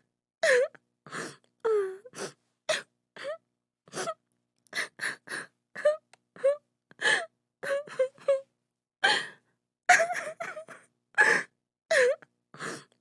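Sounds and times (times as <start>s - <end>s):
woman sobbing: 5.8s - 8.4s, 9.9s - 12.2s.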